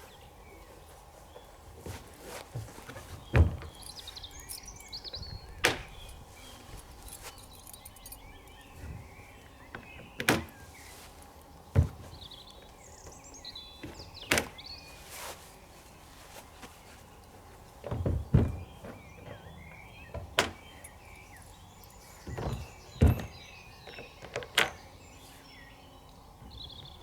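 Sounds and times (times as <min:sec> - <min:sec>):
small birds chirping faintly: 0:00.0 - 0:27.0
knocks and clunks on plastic: 0:01.8 - 0:04.0, 0:11.7 - 0:12.3, 0:17.8 - 0:19.5, 0:22.2 - 0:24.8.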